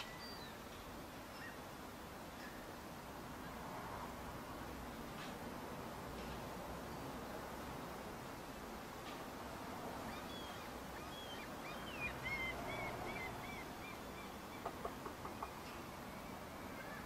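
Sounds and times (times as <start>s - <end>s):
steady outdoor hiss: 0.0s - 17.0s
small bird whistling: 10.1s - 14.7s.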